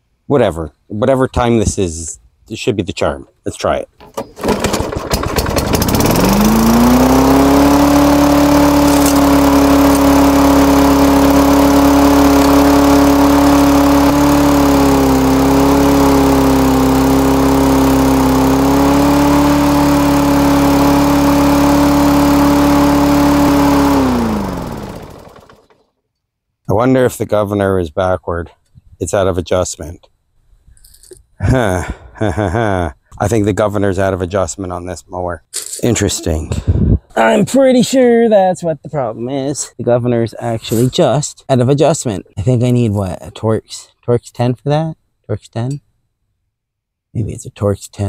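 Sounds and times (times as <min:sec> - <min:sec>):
lawnmower engine revving: 0:04.1 - 0:25.8.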